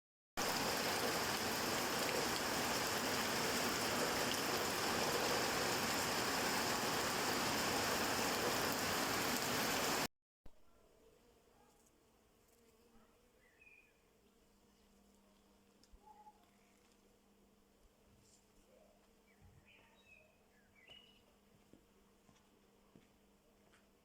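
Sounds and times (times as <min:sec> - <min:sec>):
steady rain falling: 0:00.4 - 0:10.1
quiet outdoor ambience: 0:00.4 - 0:24.0.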